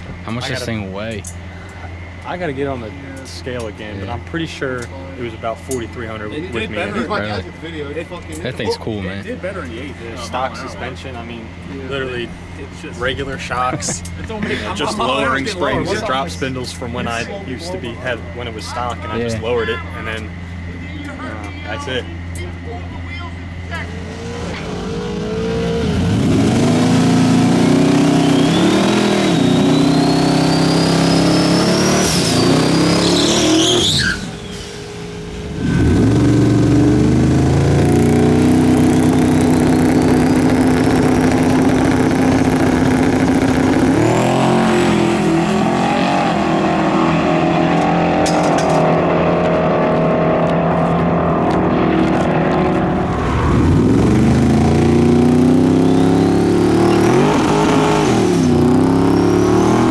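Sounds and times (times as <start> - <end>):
engine revving through gears: 23.6 - 59.9
turbo whistle: 28.0 - 35.3.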